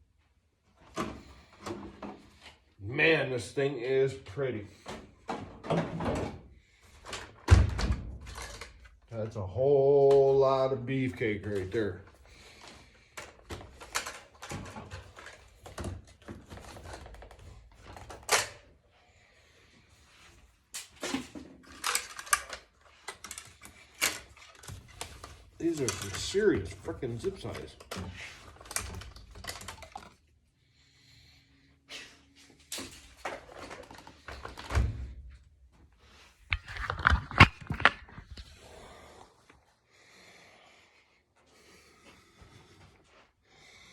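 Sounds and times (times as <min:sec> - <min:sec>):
packaging clicks and rustling: 0:20.8 - 0:30.2
plastic clicks and knocks: 0:36.5 - 0:38.4.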